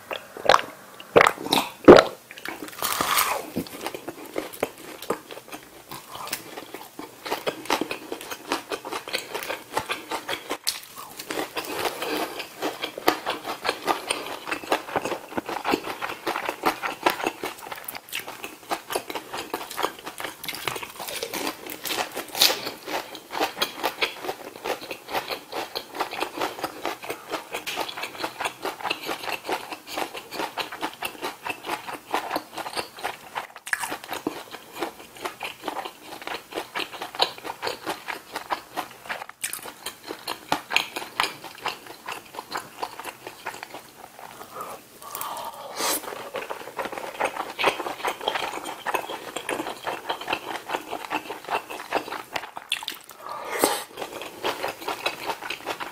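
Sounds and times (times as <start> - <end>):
wet crunchy chewing: 0.1 - 55.9.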